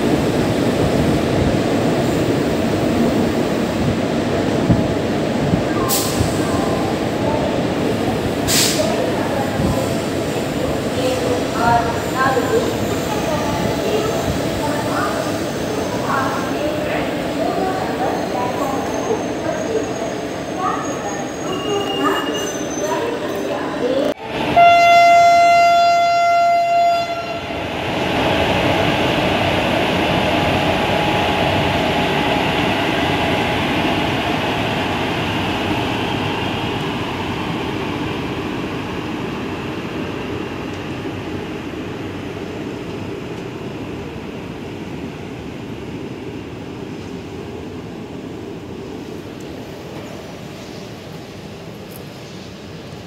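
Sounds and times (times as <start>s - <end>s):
train wheels rumbling on rail: 0.0s - 53.0s
locomotive horn: 24.5s - 27.5s.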